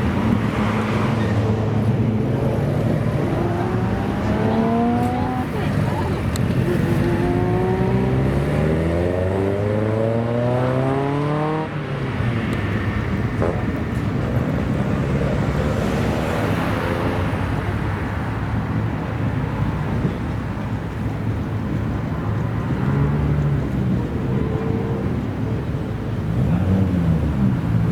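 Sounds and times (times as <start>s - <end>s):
car engine accelerating: 0.0s - 18.3s, 21.5s - 27.9s
car passing by: 0.0s - 18.6s.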